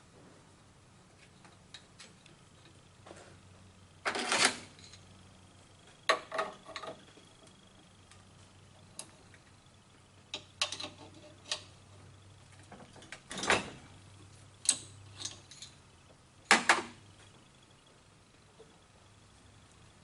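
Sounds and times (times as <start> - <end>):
faint low hum: 0.0 - 20.0
parts and tools knocking: 6.1 - 7.2.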